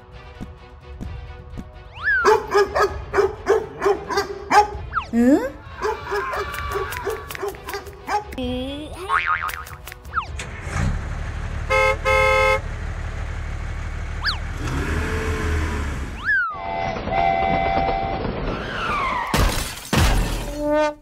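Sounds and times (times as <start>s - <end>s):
low tractor engine running: 10.2s - 16.2s
short horn honks: 11.7s - 12.6s
sliding whistle effects: 16.2s - 18.2s.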